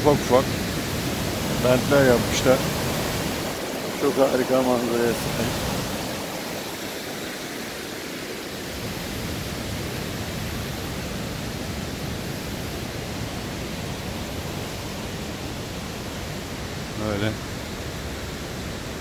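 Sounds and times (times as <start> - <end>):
water rushing over rapids: 0.0 - 19.0.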